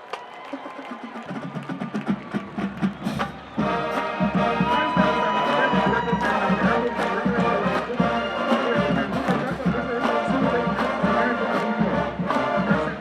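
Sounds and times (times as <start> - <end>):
drums beating steady pulse: 0.9 - 13.0
brass instruments holding chords: 3.4 - 13.0.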